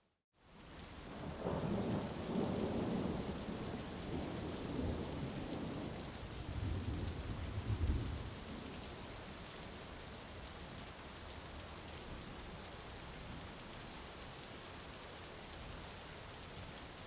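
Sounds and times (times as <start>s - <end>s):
heavy rain: 0.4s - 17.0s
low rolling thunder: 1.1s - 8.7s.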